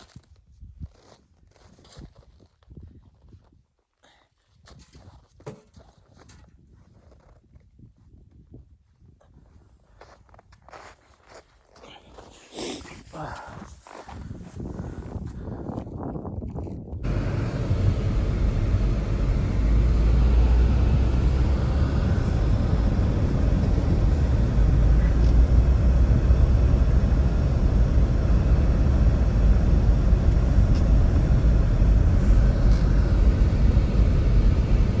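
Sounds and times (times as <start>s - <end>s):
blizzard wind rumbling: 12.8s - 35.0s.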